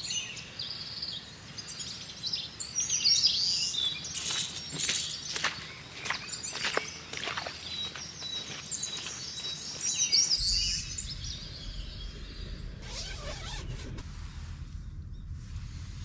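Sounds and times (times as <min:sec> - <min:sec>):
small birds chirping: 0:00.0 - 0:13.7
low outdoor rumble: 0:10.4 - 0:16.0.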